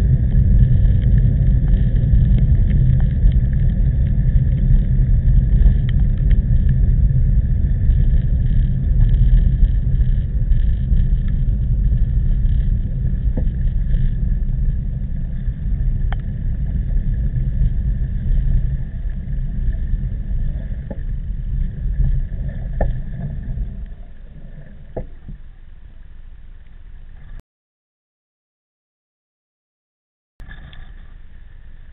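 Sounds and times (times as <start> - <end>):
wind buffeting microphone: 0.0 - 25.4
faint clicks: 7.9 - 17.0.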